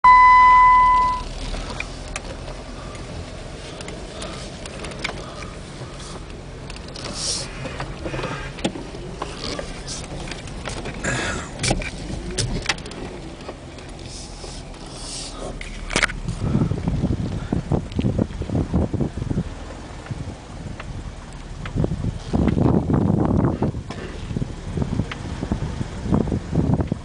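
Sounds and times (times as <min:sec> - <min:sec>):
vehicle rumbling on rocky trail: 0:00.1 - 0:27.0
knocks clicks and scrapes: 0:01.4 - 0:16.6.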